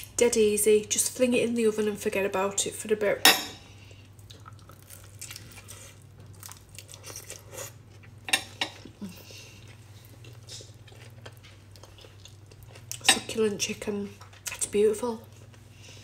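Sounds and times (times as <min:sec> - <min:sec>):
low steady hum: 0:00.0 - 0:16.0
person chewing chicken: 0:03.9 - 0:13.0.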